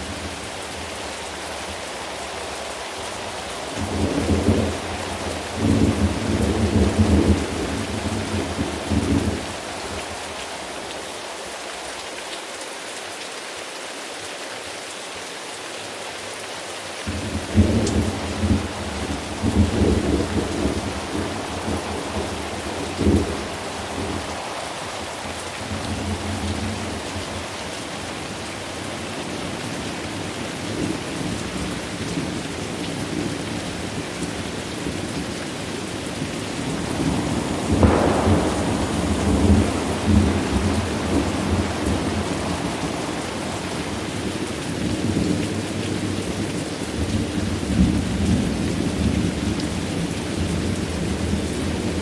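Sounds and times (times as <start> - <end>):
steady rain: 0.0 - 52.0
rolling thunder: 3.8 - 10.1, 17.1 - 27.4, 36.6 - 45.4
sharp thunderclap: 17.2 - 24.3, 36.6 - 43.7.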